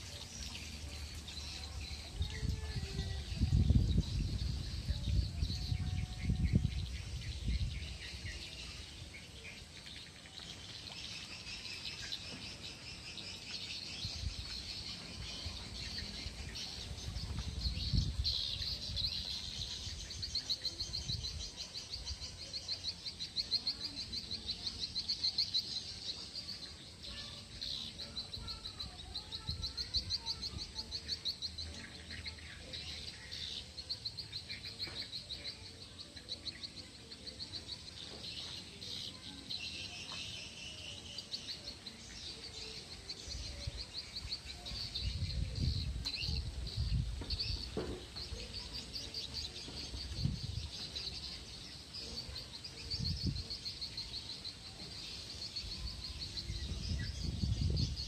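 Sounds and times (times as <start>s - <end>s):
birds chirping: 0.0s - 58.0s
low wind rumble on microphone: 2.0s - 8.2s, 16.0s - 19.3s, 44.8s - 47.8s, 49.9s - 50.7s, 52.9s - 53.6s, 55.6s - 58.0s.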